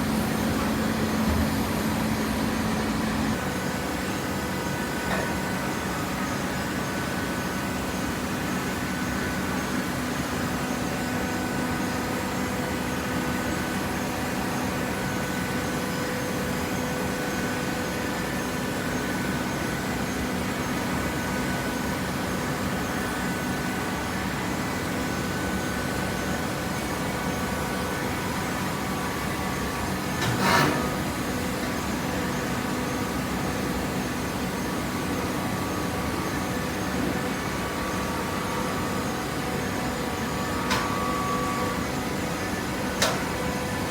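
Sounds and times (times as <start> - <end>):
hydraulic power unit humming: 0.0 - 10.2, 10.8 - 43.9.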